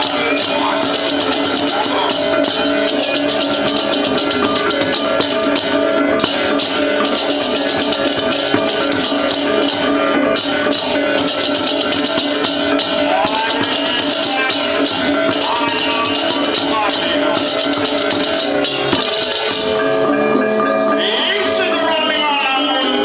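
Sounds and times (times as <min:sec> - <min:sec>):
loud fast percussion music: 0:00.0 - 0:21.0.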